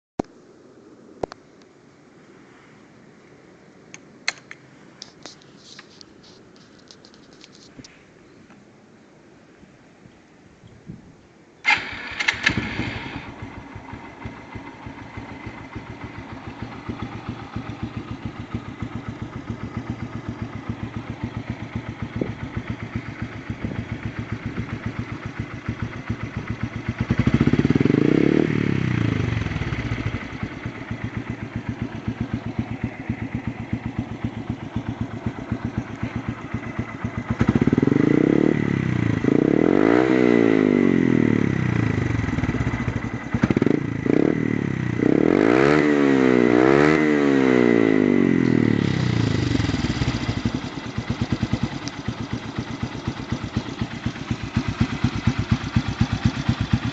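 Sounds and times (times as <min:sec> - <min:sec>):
motorcycle engine idling: 0:11.6 - 0:39.6, 0:41.3 - 0:45.2, 0:48.1 - 0:56.9
motorcycle engine revving: 0:11.6 - 0:56.9.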